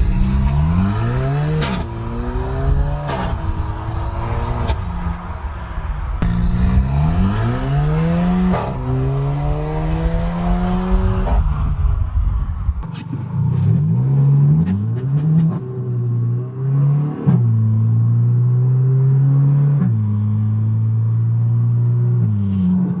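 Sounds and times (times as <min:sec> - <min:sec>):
car engine revving: 0:00.0 - 0:13.8.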